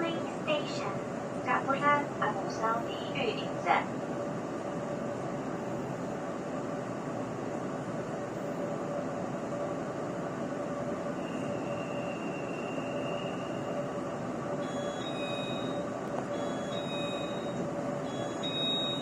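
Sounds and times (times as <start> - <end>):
train running noise from inside: 0.0 - 19.0
faint high whine: 10.5 - 19.0
short high-pitched tones: 14.6 - 19.0.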